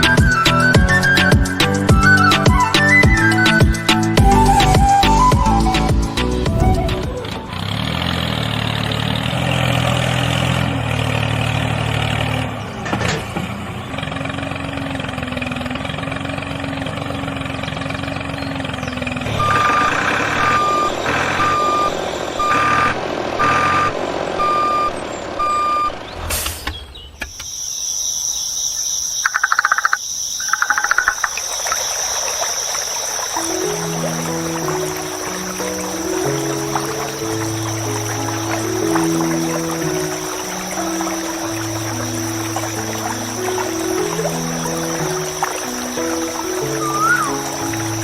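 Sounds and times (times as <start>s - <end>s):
vehicle engine running: 4.3s - 26.4s
reversing alarm beeping: 19.3s - 26.1s.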